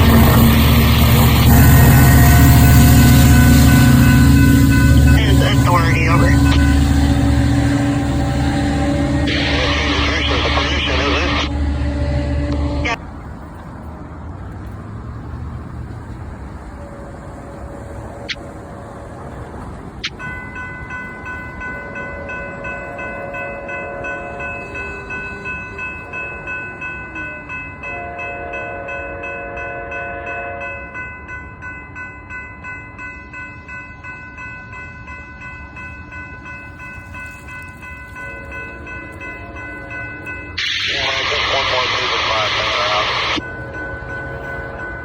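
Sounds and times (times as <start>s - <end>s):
train air horn blasts: 0.0s - 13.0s, 27.9s - 30.9s
crossing bell ringing: 0.0s - 13.6s, 16.0s - 45.0s
train rumbling: 0.0s - 45.0s.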